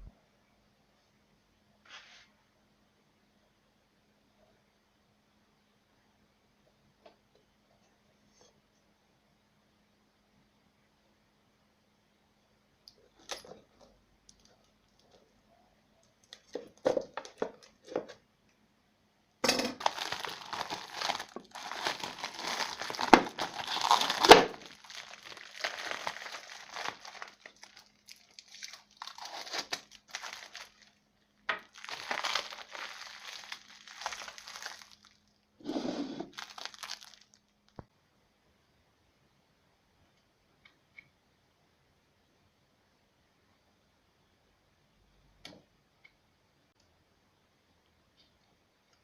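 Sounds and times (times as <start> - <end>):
crinkling and scraping handling noise: 16.0 - 18.3, 19.4 - 37.8.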